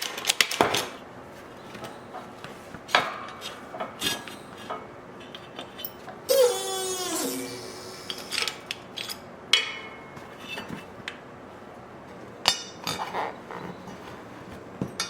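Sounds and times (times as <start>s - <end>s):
metal tools clinking on metal: 3.3s - 6.1s, 8.0s - 10.7s.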